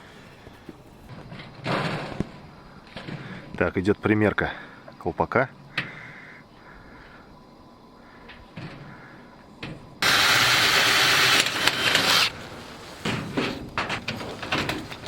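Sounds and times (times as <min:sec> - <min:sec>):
sheet metal knocks and scrapes: 0:12.9 - 0:15.0.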